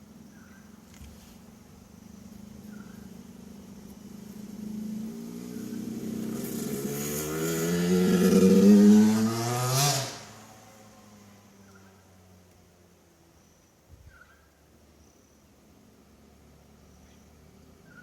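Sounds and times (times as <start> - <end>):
dirt bike engine passing: 2.5 - 11.5.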